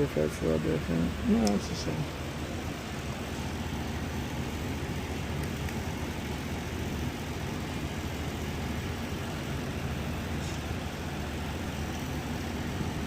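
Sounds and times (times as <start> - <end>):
low mechanical rumble: 0.0 - 13.0.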